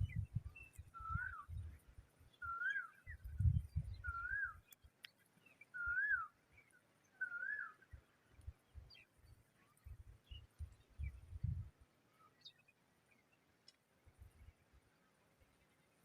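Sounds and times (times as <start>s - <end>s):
bird whistled call: 0.9s - 1.6s, 2.4s - 3.3s, 3.9s - 4.6s, 5.7s - 6.4s, 7.2s - 7.8s.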